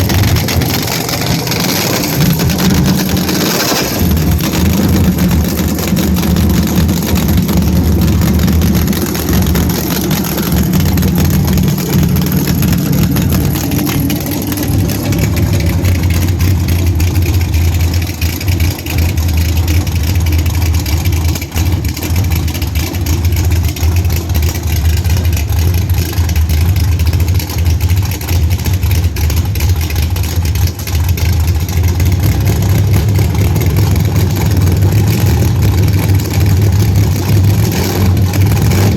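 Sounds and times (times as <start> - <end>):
higher engine note: 0.0 - 23.2
drag car engine running: 0.0 - 38.9.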